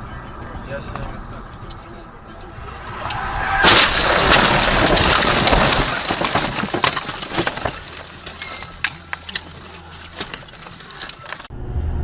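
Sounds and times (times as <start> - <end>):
vehicle crash: 1.0 - 12.0
breaking glass and debris: 2.8 - 11.5.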